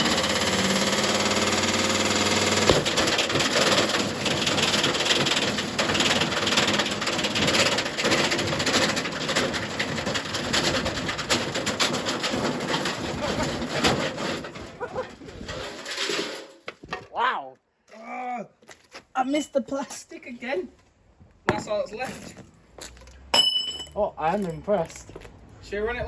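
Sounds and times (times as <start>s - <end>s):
washing machine drum banging and rattling: 2.6s - 15.1s.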